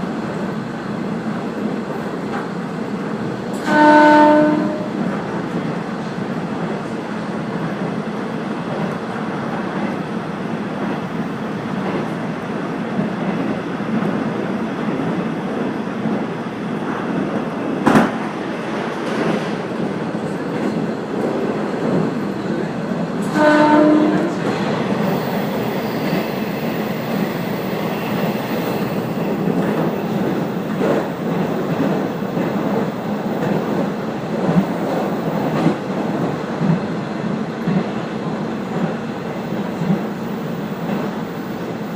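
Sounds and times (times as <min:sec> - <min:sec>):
train wheels rumbling on rail: 0:00.0 - 0:41.9
brief horn note: 0:03.6 - 0:05.0, 0:23.3 - 0:24.4.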